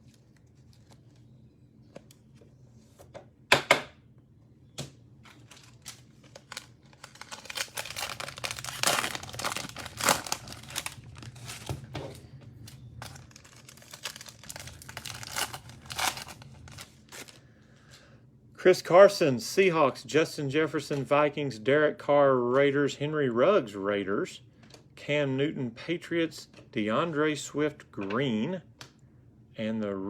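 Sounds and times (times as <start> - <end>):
cellophane wrapper tearing and crinkling: 5.2 - 11.9, 12.6 - 17.4.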